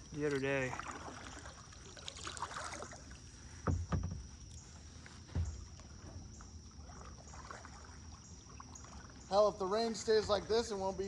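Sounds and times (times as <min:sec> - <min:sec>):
paddle strokes splashing in water: 0:00.0 - 0:11.0
dull low knocks: 0:03.6 - 0:04.3.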